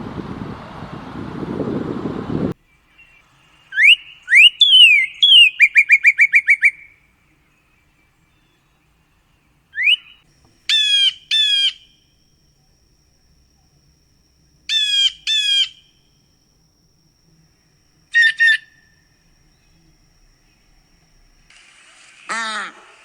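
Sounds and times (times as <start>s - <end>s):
harsh buzzy bird calls: 2.6s - 21.5s
bird whistles and trill: 3.0s - 7.0s, 9.8s - 12.0s, 14.7s - 15.9s, 18.1s - 18.9s.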